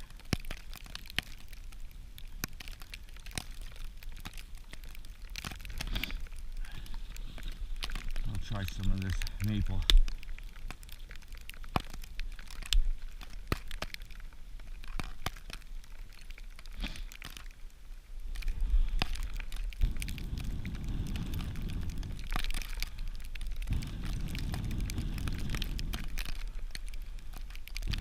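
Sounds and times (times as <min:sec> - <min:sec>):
dry wood cracking and snapping: 0:00.0 - 0:28.0
wind rumble on microphone: 0:18.2 - 0:28.0.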